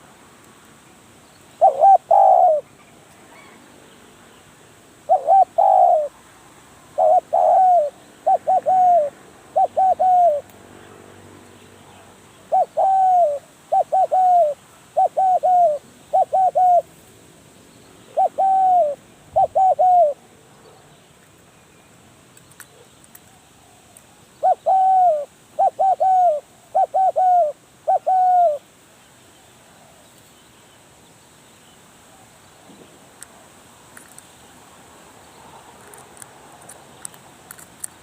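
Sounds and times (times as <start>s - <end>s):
dove cooing: 1.6s - 2.7s, 5.1s - 6.2s, 6.9s - 10.4s, 11.9s - 16.9s, 18.1s - 20.2s, 24.4s - 28.6s.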